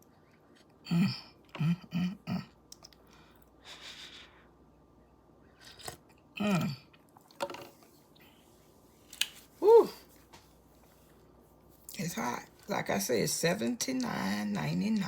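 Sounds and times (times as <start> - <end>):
woman humming mm sounds: 9.6 - 10.0.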